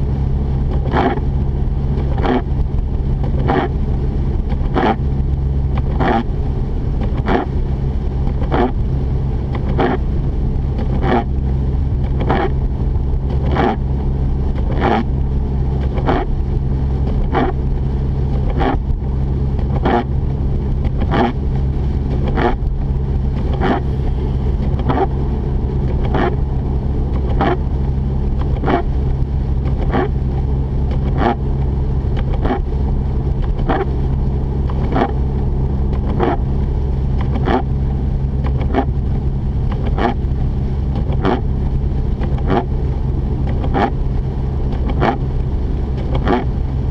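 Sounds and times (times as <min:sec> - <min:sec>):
road noise: 0:00.0 - 0:46.9
rotary engine drone in cabin: 0:00.0 - 0:46.9.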